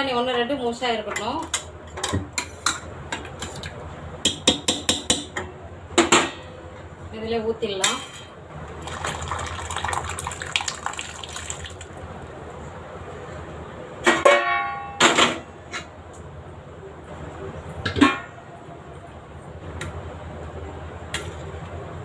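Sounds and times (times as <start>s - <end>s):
food poured into a pan: 8.8s - 11.9s.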